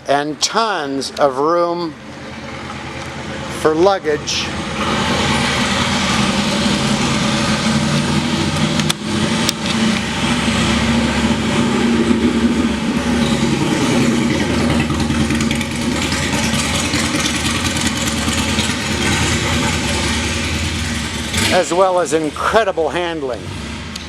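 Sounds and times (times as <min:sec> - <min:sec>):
motorcycle engine running: 0:01.0 - 0:24.0.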